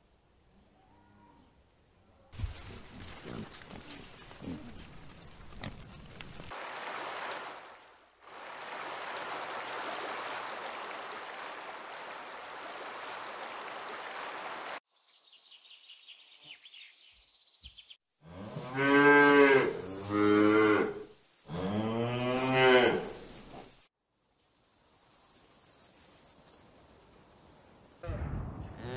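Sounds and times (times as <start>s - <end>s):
cow mooing: 18.3s - 23.1s
steady hiss: 18.3s - 28.0s.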